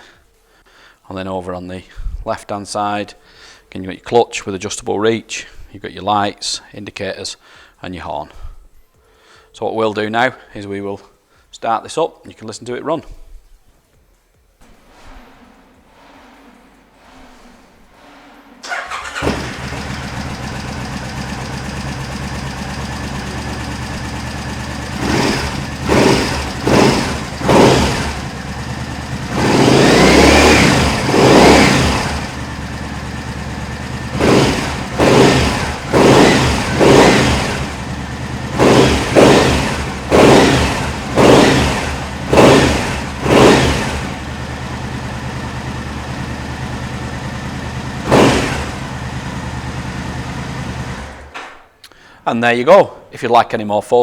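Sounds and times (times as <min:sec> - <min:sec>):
motorcycle engine revving: 0:14.9 - 0:51.5.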